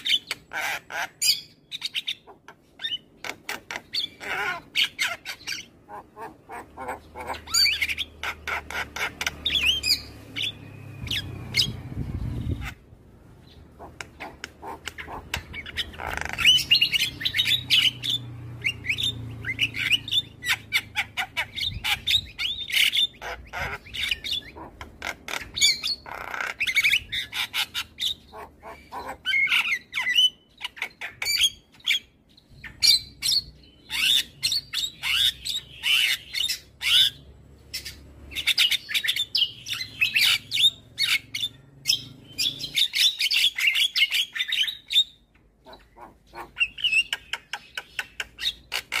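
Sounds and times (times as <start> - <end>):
myna squawking and chirping: 0.0 - 49.0.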